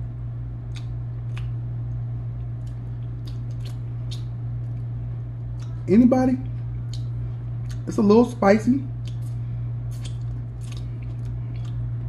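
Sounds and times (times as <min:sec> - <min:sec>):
steady low hum: 0:00.0 - 0:12.0
man chewing: 0:00.6 - 0:07.9, 0:08.9 - 0:12.0
wet smacking clicks: 0:00.7 - 0:01.6, 0:02.5 - 0:04.9, 0:05.5 - 0:05.8, 0:06.4 - 0:07.8, 0:09.0 - 0:11.9.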